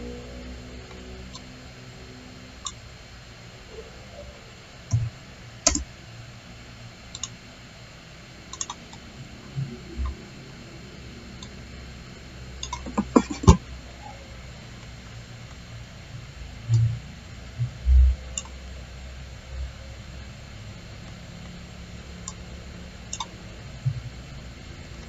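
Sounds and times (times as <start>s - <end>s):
mouse and keyboard clicks: 8.6s - 8.8s, 12.6s - 13.6s.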